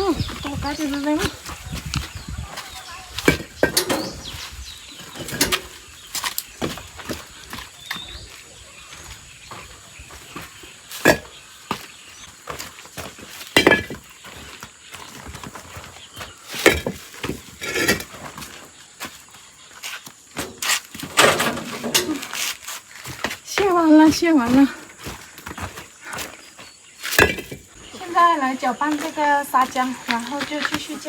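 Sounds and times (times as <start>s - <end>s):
bricks knocking and scraping: 0.0s - 4.4s, 11.0s - 11.8s, 12.5s - 14.1s, 16.5s - 18.4s, 27.1s - 28.0s.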